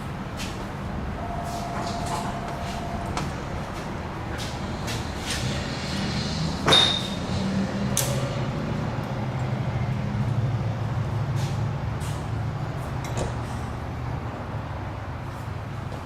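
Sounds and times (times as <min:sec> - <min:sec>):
steady low hum: 0:00.0 - 0:15.1
sharp metallic clink: 0:06.7 - 0:07.3.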